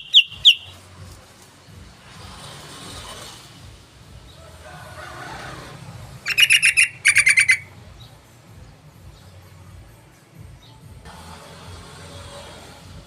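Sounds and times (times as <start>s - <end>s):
bulbul chattering: 0.0s - 0.8s, 6.2s - 7.7s.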